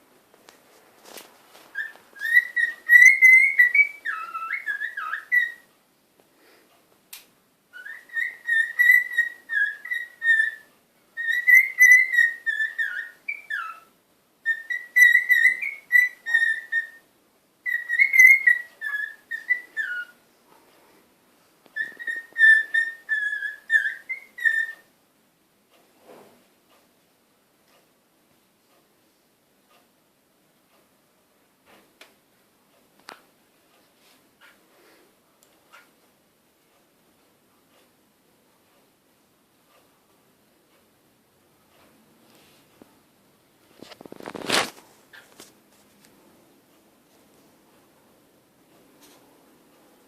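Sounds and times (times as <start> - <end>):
cockatiel whistling: 1.8 - 5.7, 7.7 - 17.0, 17.6 - 20.2, 21.8 - 24.9.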